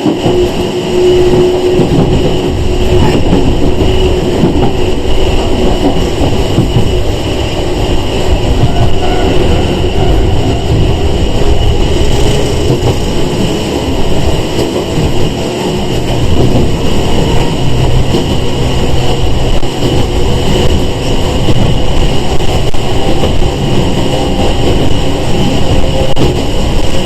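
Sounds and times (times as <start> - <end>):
train rumbling: 0.0 - 27.0.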